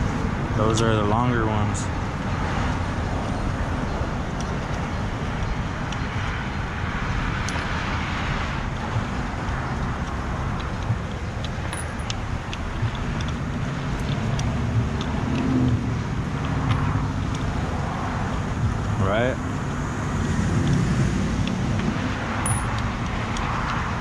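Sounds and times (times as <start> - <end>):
road traffic rumble: 0.0 - 24.0
small metal parts clicking: 11.6 - 12.6, 22.4 - 23.4.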